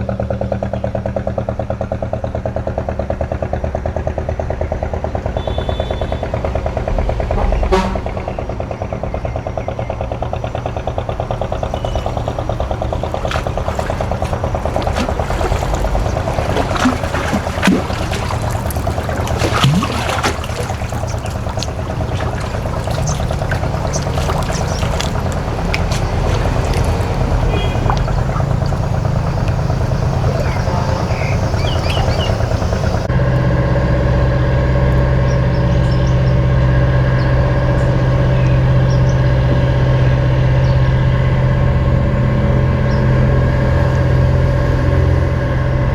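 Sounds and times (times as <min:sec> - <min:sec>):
boat engine running: 0:00.0 - 0:45.9
water pouring and splashing: 0:10.9 - 0:33.0.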